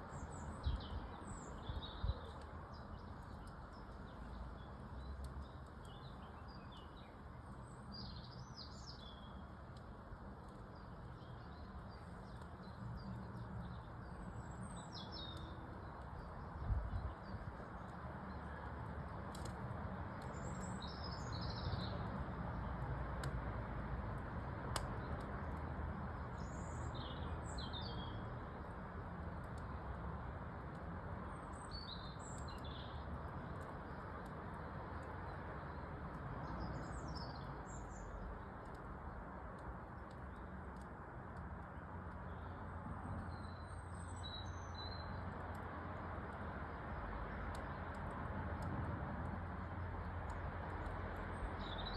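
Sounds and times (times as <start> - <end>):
songbird chirping: 0.0 - 9.6, 42.1 - 45.8, 49.7 - 51.9
fire crackles: 0.0 - 51.9.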